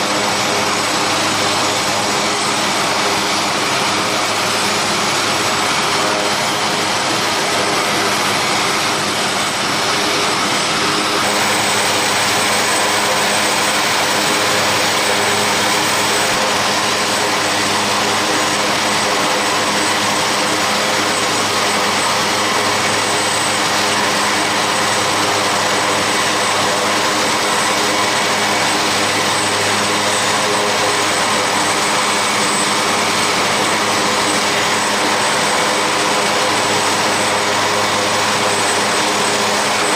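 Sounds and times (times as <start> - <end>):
aircraft turbine engines whining: 0.0 - 39.9.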